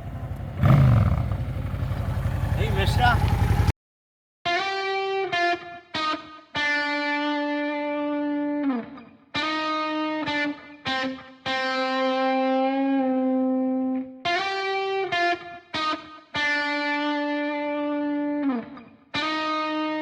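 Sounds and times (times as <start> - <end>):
distorted electric guitar: 4.5 - 20.0.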